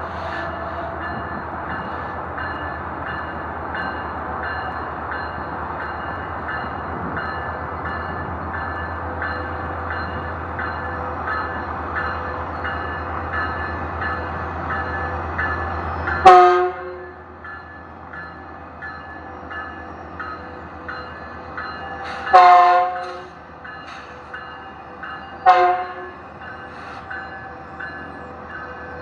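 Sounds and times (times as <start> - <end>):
diesel train rumble: 0.0 - 29.0
train horn blast: 16.2 - 17.2, 22.2 - 23.4, 25.4 - 26.3.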